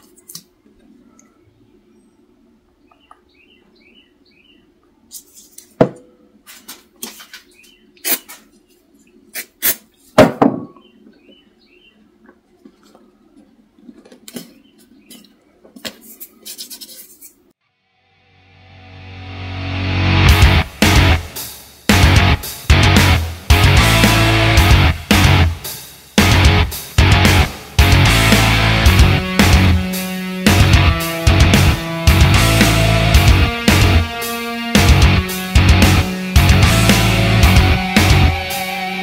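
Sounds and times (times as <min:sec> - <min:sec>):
sharp knocks on wood: 0:10.2 - 0:10.8.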